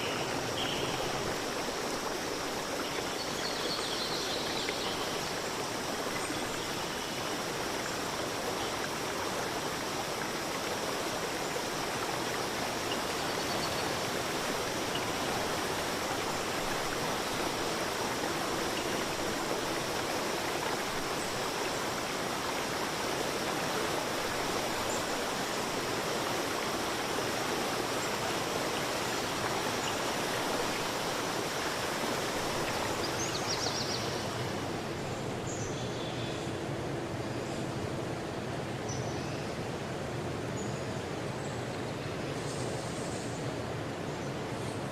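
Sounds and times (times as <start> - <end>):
stream rushing over rocks: 0.0 - 35.9.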